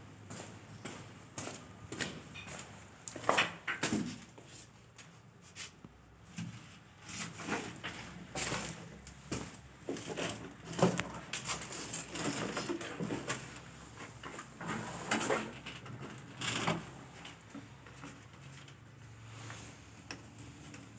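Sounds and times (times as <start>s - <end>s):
objects knocking and scraping: 6.3s - 18.8s.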